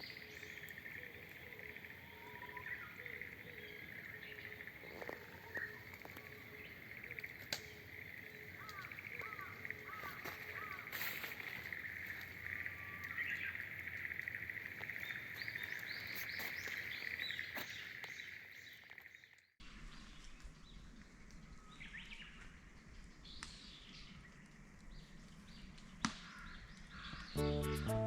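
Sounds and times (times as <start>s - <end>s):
insect drone: 0.0s - 18.4s
small birds chirping: 0.0s - 27.7s.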